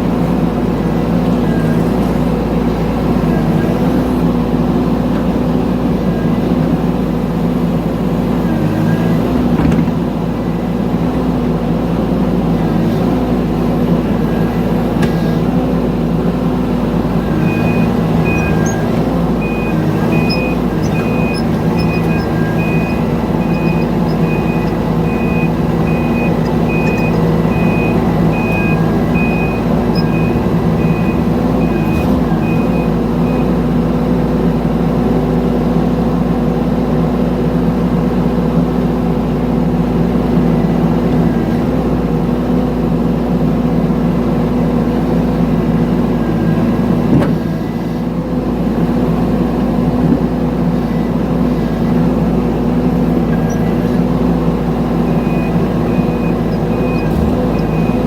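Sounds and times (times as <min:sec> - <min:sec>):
diesel engine running: 0:00.0 - 0:58.0
travel alarm beeping: 0:17.3 - 0:32.9.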